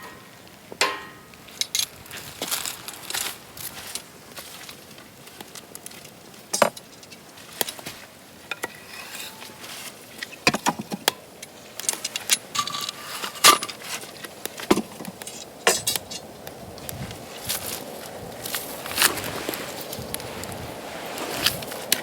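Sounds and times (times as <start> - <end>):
short metallic ring: 0.0 - 1.3
metal parts clinking and knocking: 11.8 - 13.8.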